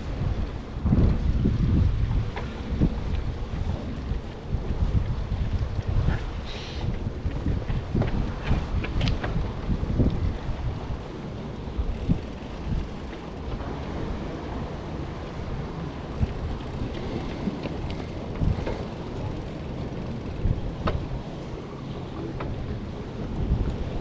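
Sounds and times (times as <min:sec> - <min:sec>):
wind buffeting microphone: 0:00.0 - 0:24.0
faint clicks: 0:16.2 - 0:21.1.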